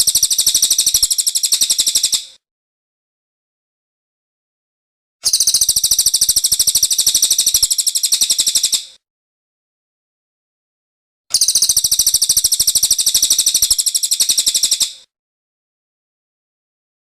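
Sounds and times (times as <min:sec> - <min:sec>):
fast bird trill: 0:00.0 - 0:02.3, 0:05.2 - 0:08.9, 0:11.3 - 0:15.0.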